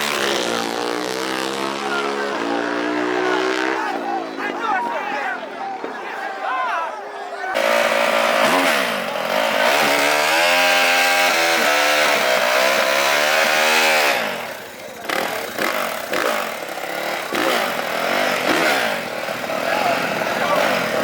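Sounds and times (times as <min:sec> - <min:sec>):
small racing engine revving: 0:00.0 - 0:04.0, 0:07.6 - 0:21.0.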